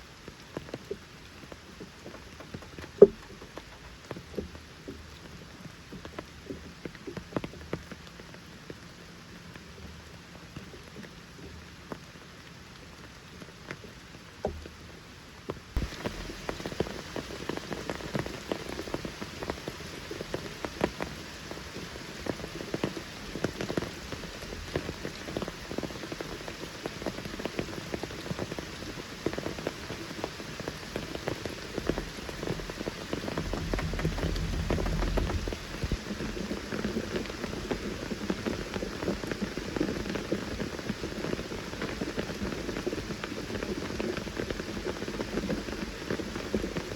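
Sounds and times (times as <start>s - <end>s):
rain falling in forest: 0.0s - 46.9s
low rumble: 32.3s - 36.8s.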